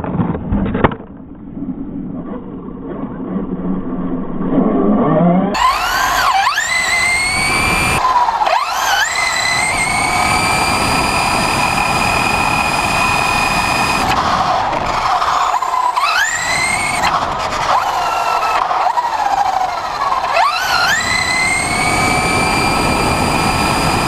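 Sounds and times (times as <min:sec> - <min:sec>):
rough rushing noise: 0:00.0 - 0:24.0
electric motor whining: 0:05.5 - 0:24.0.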